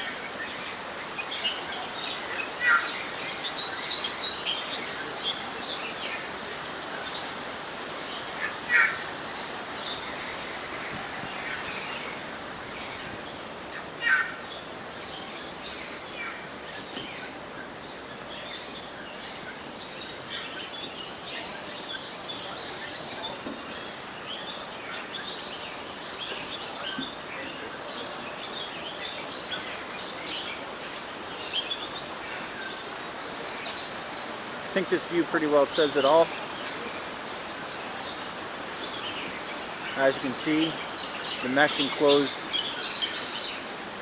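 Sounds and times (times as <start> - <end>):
birds chirping and calling: 0.0 - 44.0
steady background hiss: 0.0 - 44.0.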